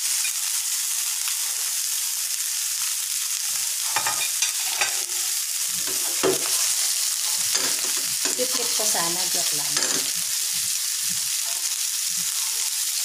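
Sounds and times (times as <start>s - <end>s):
food sizzling in oil: 0.0s - 13.0s
metal tongs scraping a pan: 3.8s - 10.5s.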